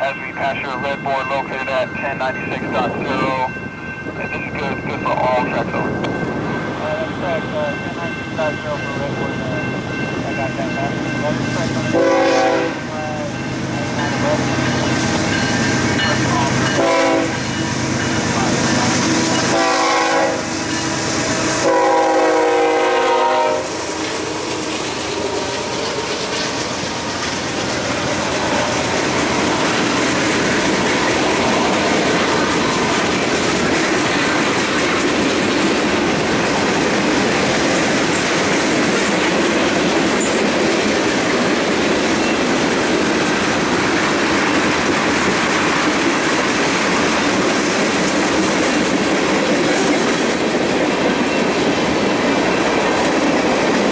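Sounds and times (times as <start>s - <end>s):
locomotive horn blasts: 11.8s - 13.3s, 16.6s - 17.6s, 19.4s - 20.6s, 21.5s - 24.0s
freight train wheels clattering: 23.6s - 53.9s.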